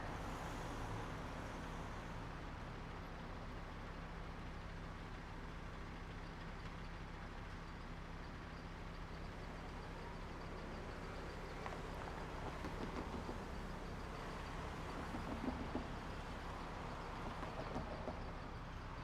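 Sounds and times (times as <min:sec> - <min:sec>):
low traffic hum: 0:00.0 - 0:04.3, 0:09.4 - 0:19.0.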